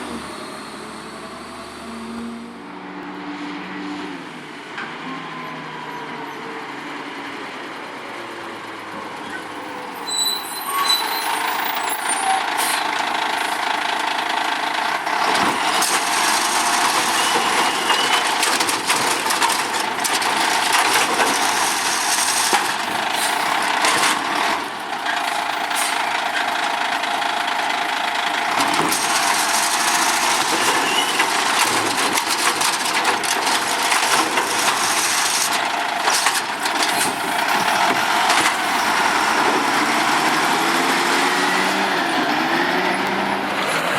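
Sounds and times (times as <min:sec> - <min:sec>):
garbage truck engine and hydraulics: 0:00.0 - 0:43.9
knocks and clatter: 0:28.5 - 0:38.8.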